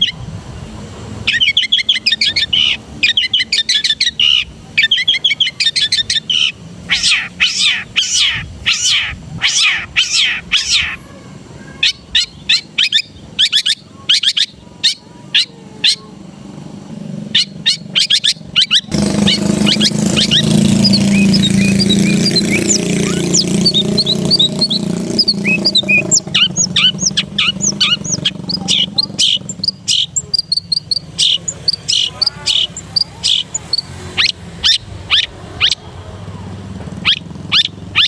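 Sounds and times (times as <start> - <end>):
whistled chirps: 17.3 - 35.9, 37.0 - 38.0
shrike singing harsh notes: 18.6 - 35.9.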